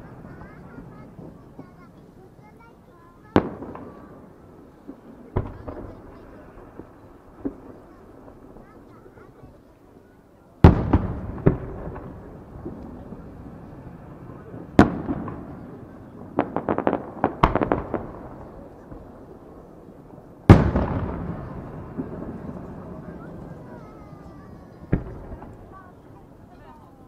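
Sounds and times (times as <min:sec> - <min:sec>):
crackling firework pops: 0:03.2 - 0:09.7, 0:10.6 - 0:26.7
firework shells bursting: 0:10.6 - 0:26.4.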